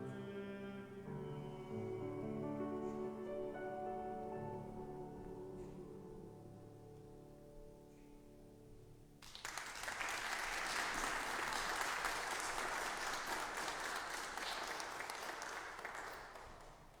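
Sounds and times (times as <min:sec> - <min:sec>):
congregation applauding: 0:09.2 - 0:17.0.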